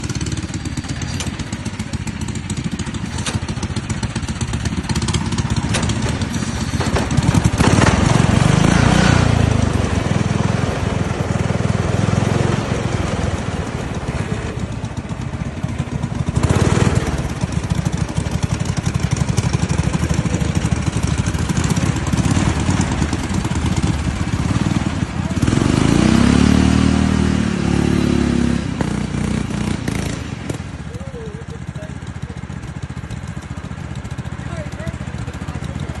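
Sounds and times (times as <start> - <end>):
lawn tractor engine running: 0.0 - 36.0.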